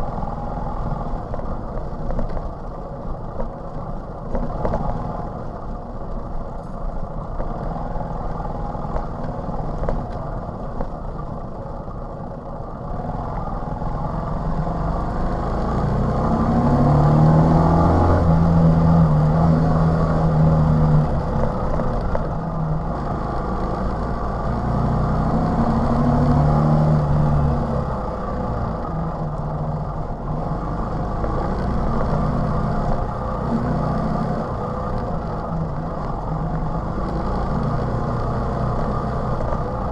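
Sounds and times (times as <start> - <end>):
moped engine running: 12.7 - 39.9.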